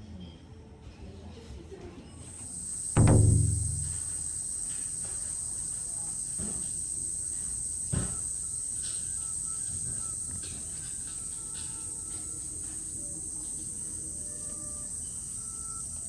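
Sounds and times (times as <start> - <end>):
high-pitched insect chorus: 2.5 - 16.0
short knock: 3.0 - 4.3.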